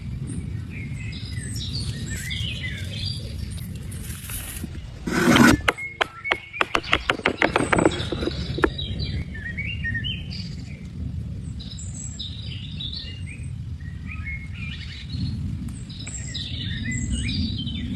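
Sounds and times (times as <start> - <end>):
small birds chirping: 0.0 - 10.9.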